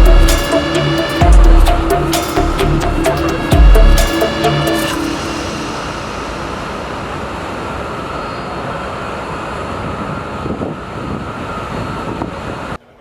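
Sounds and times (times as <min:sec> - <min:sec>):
music: 0:00.0 - 0:06.6
rushing mechanical noise: 0:00.0 - 0:12.8
faint hum: 0:00.0 - 0:13.0.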